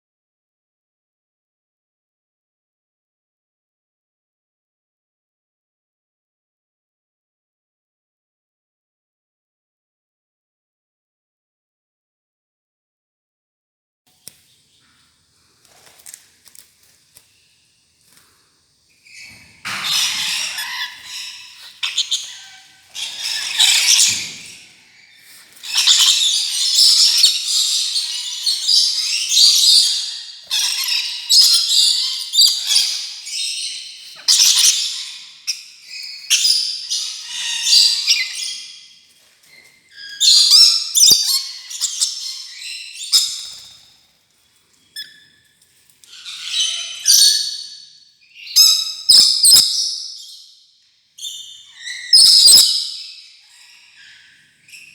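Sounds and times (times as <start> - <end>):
lorikeet screeching and squawking: 19.0 - 38.9, 39.9 - 43.9, 46.1 - 50.5, 51.2 - 54.9.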